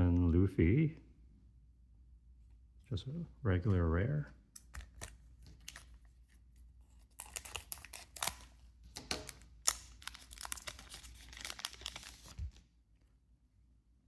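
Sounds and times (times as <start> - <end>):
foil wrapper crinkling and tearing: 6.9 - 12.6.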